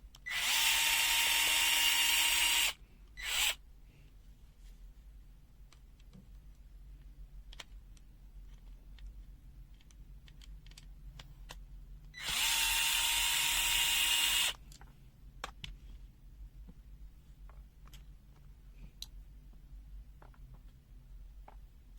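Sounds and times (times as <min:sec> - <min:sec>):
electric screwdriver running: 0:00.3 - 0:03.6, 0:12.2 - 0:14.6.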